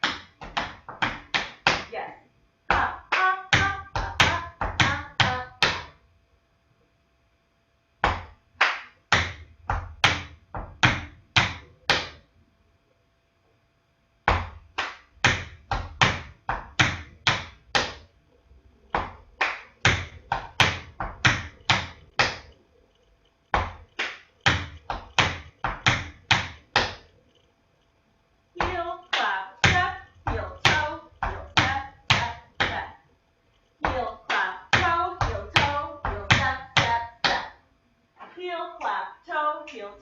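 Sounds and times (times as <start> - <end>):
hand claps: 2.7 - 5.9, 8.0 - 12.2, 14.3 - 18.0, 19.0 - 22.5, 23.6 - 27.0, 33.8 - 37.5
tap shoes on hard floor: 24.4 - 27.0.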